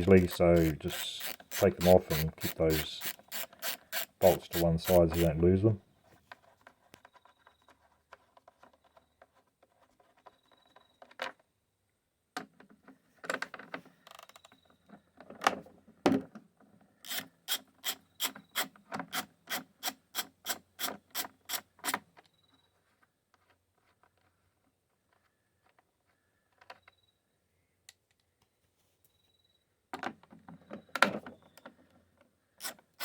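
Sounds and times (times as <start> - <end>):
ratchet wrench rasping: 0.0 - 5.4, 17.1 - 19.2.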